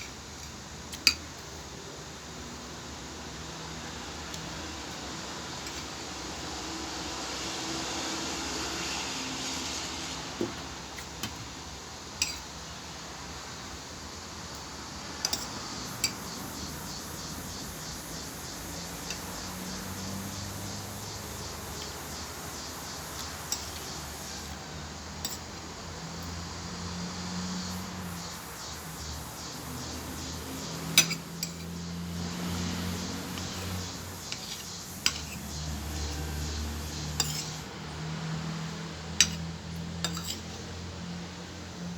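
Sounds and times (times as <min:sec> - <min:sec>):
steady background hiss: 0:00.0 - 0:41.9
cutlery clinking against plate: 0:12.2 - 0:12.5, 0:15.3 - 0:16.2, 0:25.2 - 0:25.5, 0:31.0 - 0:31.7, 0:34.3 - 0:35.4, 0:37.2 - 0:37.6, 0:39.2 - 0:39.4, 0:40.0 - 0:40.6.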